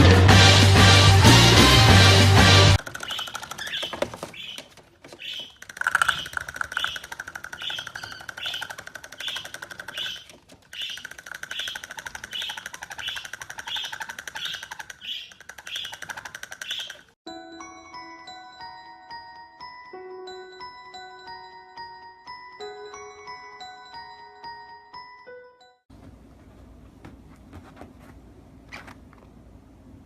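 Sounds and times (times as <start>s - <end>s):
parrot chirping: 2.8s - 17.2s.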